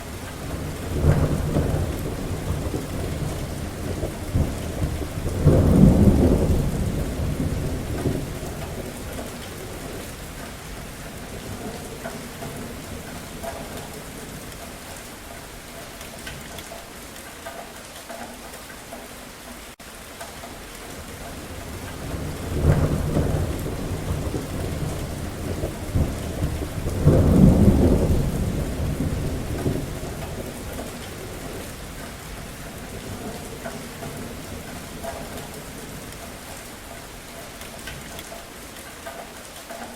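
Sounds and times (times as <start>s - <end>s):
thunder rumbling: 0.0s - 15.6s, 20.8s - 38.1s
steady rain: 0.0s - 39.9s.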